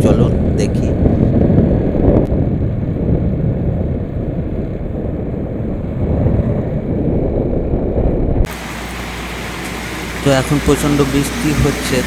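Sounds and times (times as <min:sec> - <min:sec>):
wind and road noise on motorbike: 0:00.0 - 0:12.0
wind buffeting microphone: 0:00.0 - 0:12.0.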